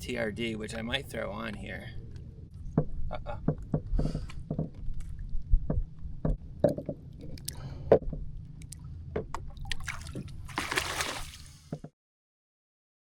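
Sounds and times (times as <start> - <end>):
knocks and clicks: 2.7 - 8.3
water splashing and dripping: 8.6 - 11.7.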